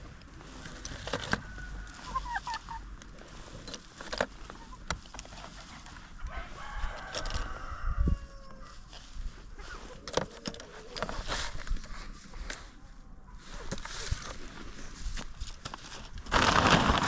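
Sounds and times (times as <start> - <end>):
chickens clucking: 1.4 - 3.4, 4.3 - 6.3.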